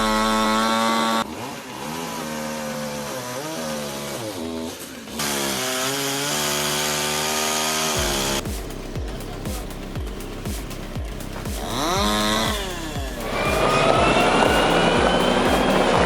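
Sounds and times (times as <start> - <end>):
chainsaw engine revving: 0.0 - 16.0
pulsing sound: 8.0 - 16.0.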